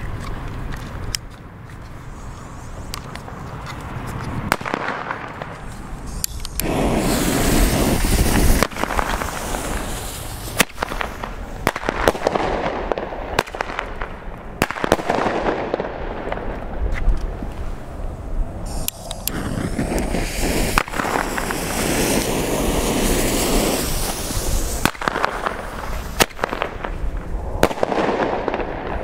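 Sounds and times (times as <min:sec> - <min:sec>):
ground fireworks hissing: 0:01.9 - 0:29.0
firecrackers cracking: 0:02.3 - 0:17.9, 0:18.7 - 0:29.0.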